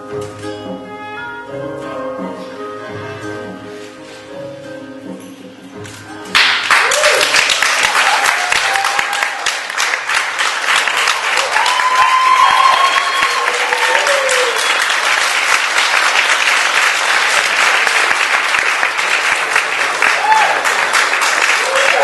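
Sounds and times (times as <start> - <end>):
audience applauding: 6.3 - 22.0.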